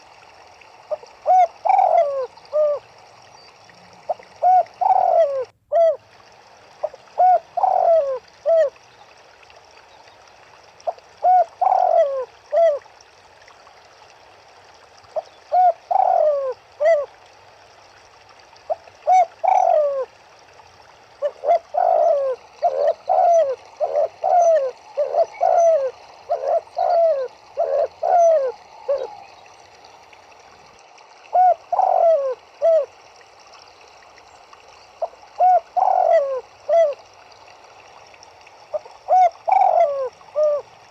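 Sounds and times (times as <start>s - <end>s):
doves cooing: 0.2s - 6.1s, 6.8s - 8.8s, 10.7s - 12.9s, 15.1s - 17.2s, 18.6s - 20.2s, 21.2s - 30.5s, 31.3s - 33.0s, 35.0s - 37.4s, 38.6s - 40.9s.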